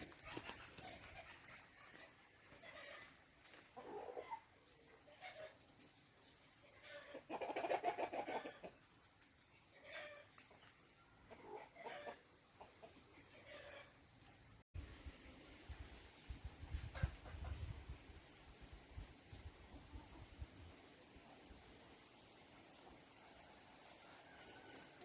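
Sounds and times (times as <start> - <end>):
chickens clucking: 0.0 - 14.4, 16.5 - 17.8.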